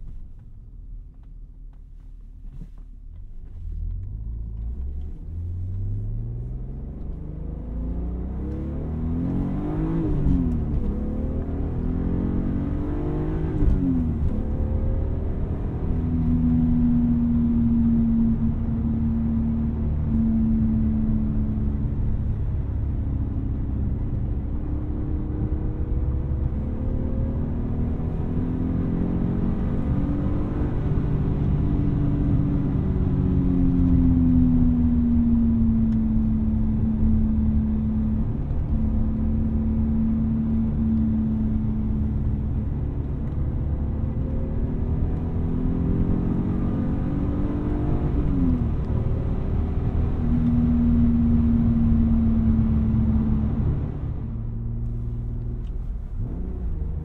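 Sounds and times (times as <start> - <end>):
road rumble: 0.0 - 57.0.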